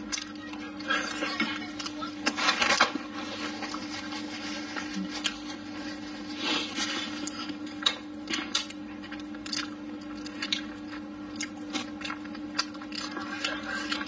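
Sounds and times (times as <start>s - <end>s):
steady low hum: 0.0s - 14.0s
person chewing with wet smacks: 6.7s - 14.0s.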